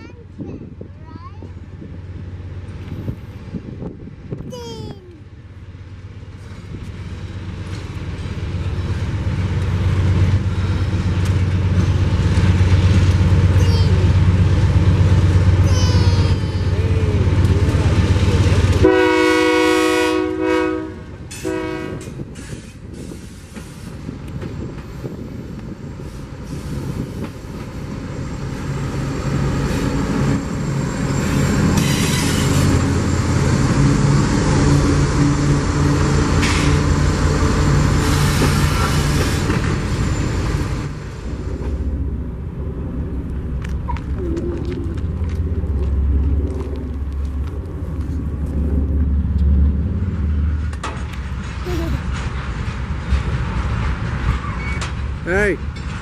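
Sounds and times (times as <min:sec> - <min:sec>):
diesel locomotive engine rumble: 0:00.0 - 0:56.0
train horn blasts: 0:18.8 - 0:22.2
train wheels clattering on rail: 0:21.2 - 0:41.9, 0:43.3 - 0:56.0.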